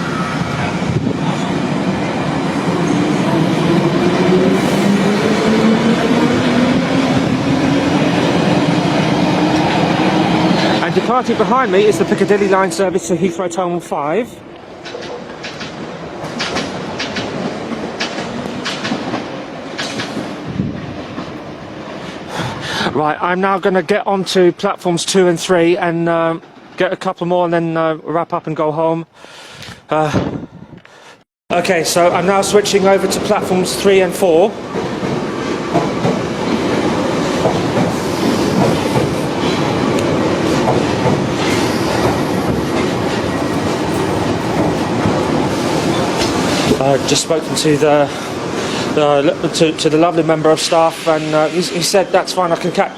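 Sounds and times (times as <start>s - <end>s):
train rumbling: 0.0s - 27.1s, 31.5s - 52.9s
wheels clicking over rail joints: 14.8s - 20.4s.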